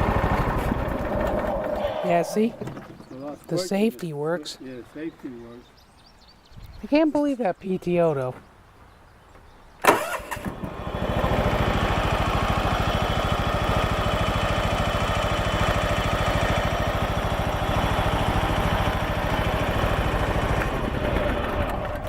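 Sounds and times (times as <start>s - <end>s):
lawn tractor engine running: 0.0s - 2.9s, 9.9s - 22.0s.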